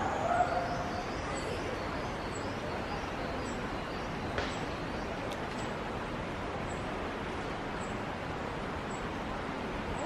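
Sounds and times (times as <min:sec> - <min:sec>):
outdoor background noise: 0:00.0 - 0:10.0.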